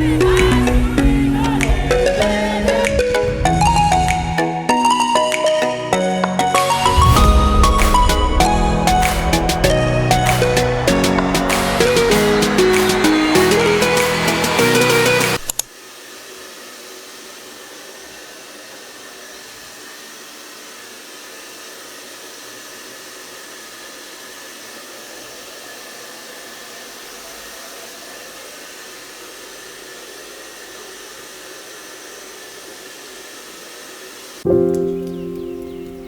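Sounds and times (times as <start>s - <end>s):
steady rushing noise: 0.0s - 4.8s, 6.6s - 15.5s.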